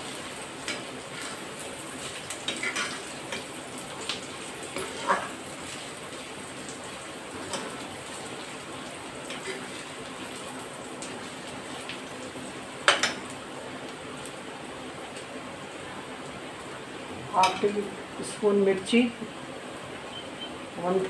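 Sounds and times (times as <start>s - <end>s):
onions sizzling in oil: 0.0s - 21.0s
steel ladle scraping pan: 4.8s - 5.4s.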